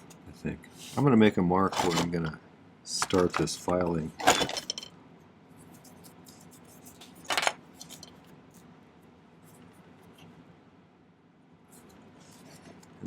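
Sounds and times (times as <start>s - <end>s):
metal tools clattering: 1.7s - 2.1s, 3.0s - 4.9s, 7.3s - 8.2s.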